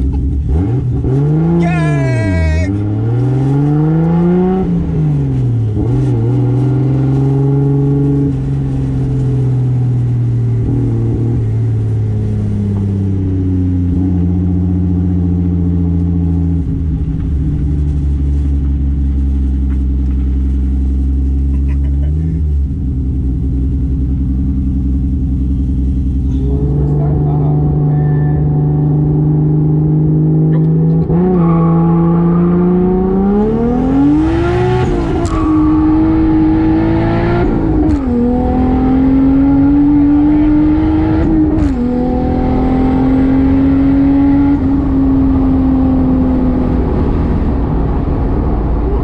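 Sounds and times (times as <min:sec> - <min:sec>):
car engine revving through gears: 0:00.0 - 0:01.6, 0:02.7 - 0:09.8, 0:26.3 - 0:49.0.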